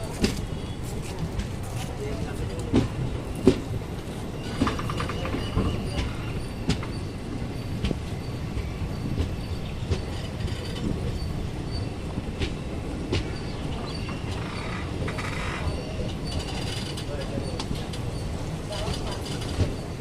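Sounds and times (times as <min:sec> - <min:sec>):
train rumbling on rails: 0:00.0 - 0:20.0
wheels clicking over track: 0:12.3 - 0:20.0.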